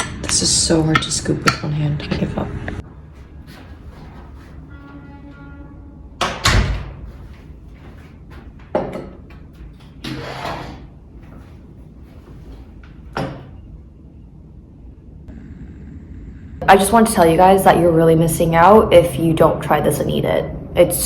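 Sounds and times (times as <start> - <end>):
knocks and clatters of objects: 6.2 - 10.2.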